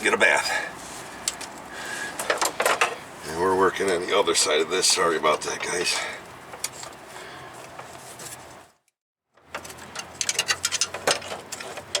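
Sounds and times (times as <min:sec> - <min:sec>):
scraping and handling noise: 0:06.5 - 0:08.8, 0:09.4 - 0:12.0
metal tools clicking and knocking: 0:09.5 - 0:12.0.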